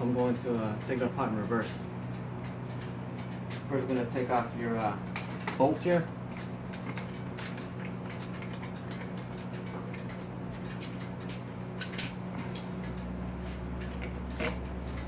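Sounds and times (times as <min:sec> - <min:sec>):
steady low hum: 0:00.0 - 0:15.0
ringing metallic clink: 0:11.8 - 0:12.3.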